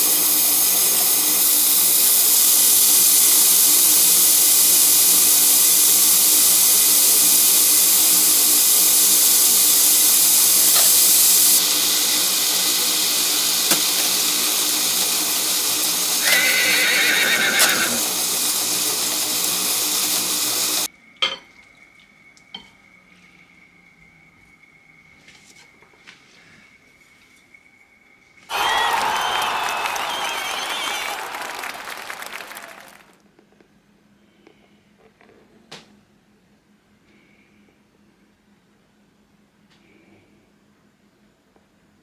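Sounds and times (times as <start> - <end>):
tap running into a sink: 12.0 - 15.2.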